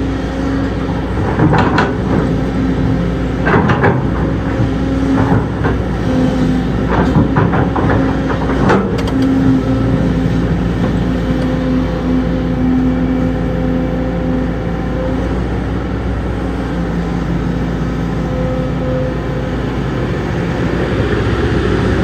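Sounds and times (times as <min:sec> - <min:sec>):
heavy diesel machine running: 0:00.0 - 0:22.0
metallic clanks and knocks: 0:01.1 - 0:05.9, 0:06.8 - 0:09.4.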